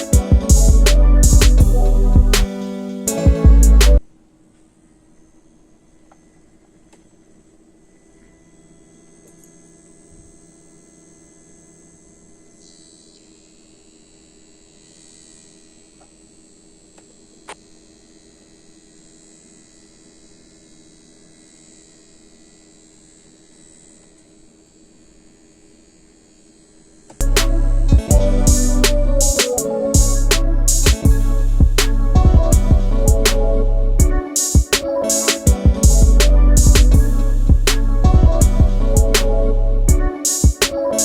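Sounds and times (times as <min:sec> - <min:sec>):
cooler pump humming and whining: 0:06.1 - 0:29.4.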